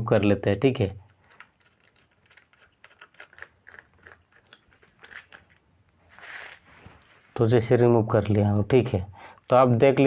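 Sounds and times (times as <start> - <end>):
screwdriver clicks and scrapes: 1.3 - 6.6.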